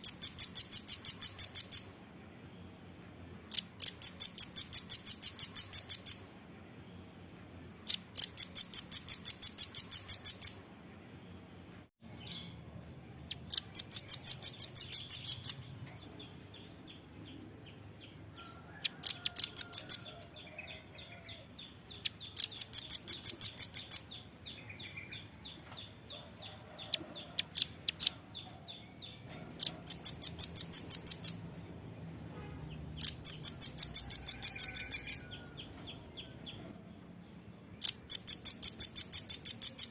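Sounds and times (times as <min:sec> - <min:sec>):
nuthatch calling: 0:00.0 - 0:02.0, 0:03.5 - 0:06.3, 0:07.9 - 0:10.6, 0:13.3 - 0:15.7, 0:22.0 - 0:25.2, 0:29.6 - 0:31.4, 0:32.0 - 0:35.6, 0:37.8 - 0:39.9.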